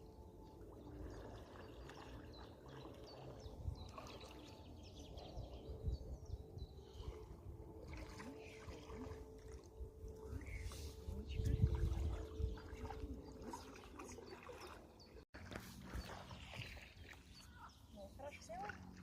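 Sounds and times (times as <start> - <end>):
water splashing and trickling: 0.0 - 5.7, 6.4 - 19.0
low rumble: 9.8 - 13.6.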